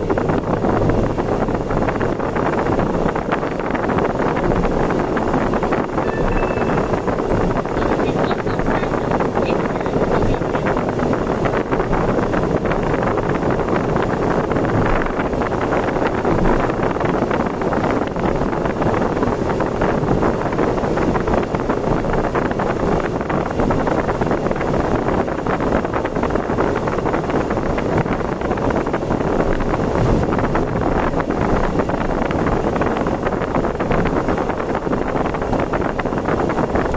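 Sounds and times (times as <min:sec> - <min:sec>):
road and wind noise: 0:00.0 - 0:36.9
wind buffeting microphone: 0:00.0 - 0:36.9.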